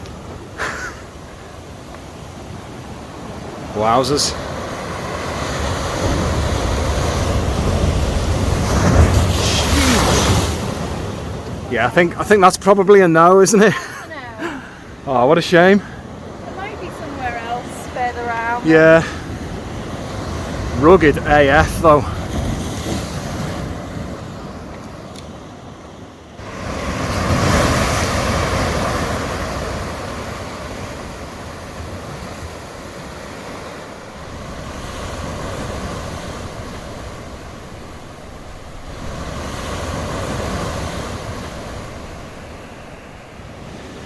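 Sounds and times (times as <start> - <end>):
waves crashing on rocky shore: 0.0 - 44.0.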